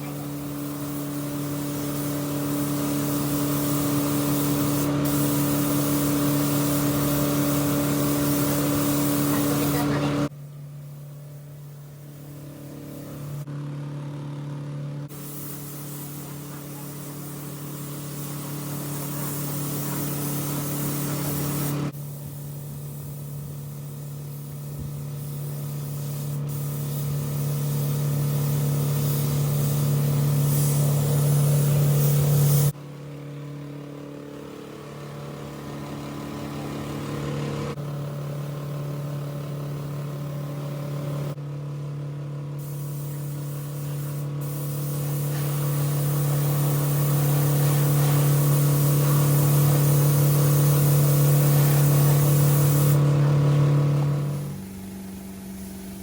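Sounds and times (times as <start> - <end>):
air hissing: 0.0 - 10.0, 10.8 - 13.5, 15.1 - 32.8, 42.6 - 56.0.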